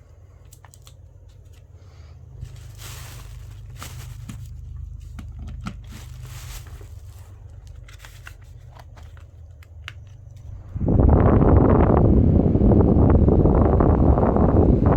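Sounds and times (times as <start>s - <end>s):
steady low hum: 0.0s - 14.9s
packaging rustling: 0.3s - 10.5s.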